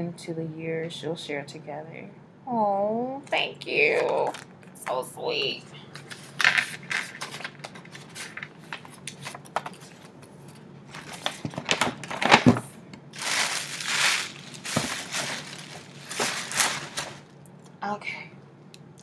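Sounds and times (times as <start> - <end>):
paper crinkling and rustling: 5.9 - 12.6, 13.2 - 17.3.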